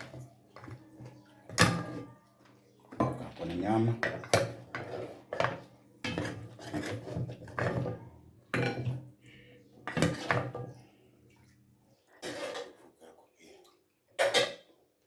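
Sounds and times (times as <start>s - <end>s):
cutlery clinking on dishes: 0.0s - 2.3s, 2.9s - 9.1s.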